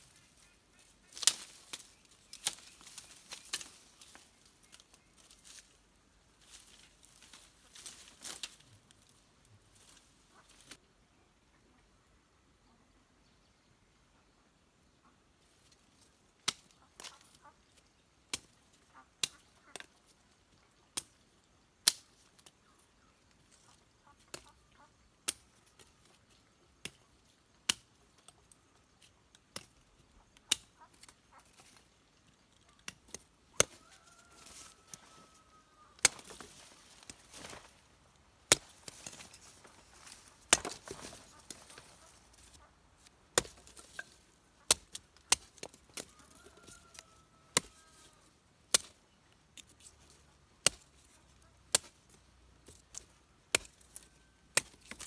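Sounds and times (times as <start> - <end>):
hand tool chopping strikes: 38.5 - 41.9, 43.3 - 46.1, 53.6 - 55.0.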